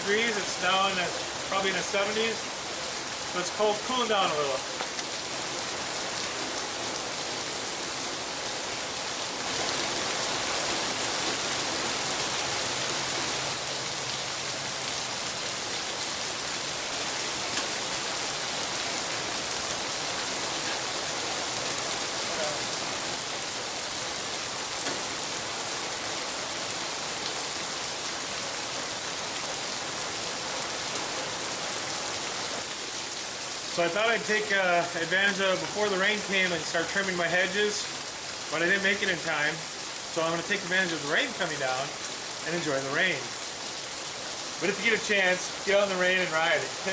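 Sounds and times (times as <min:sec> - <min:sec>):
steady rain hiss: 0:00.0 - 0:46.9.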